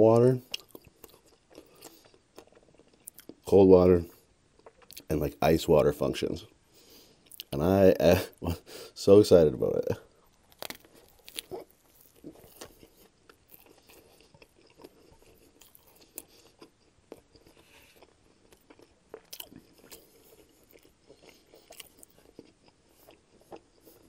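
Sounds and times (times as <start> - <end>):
chewing with wet mouth clicks: 0.4 - 3.4, 4.6 - 5.1, 7.2 - 7.5, 10.3 - 24.0.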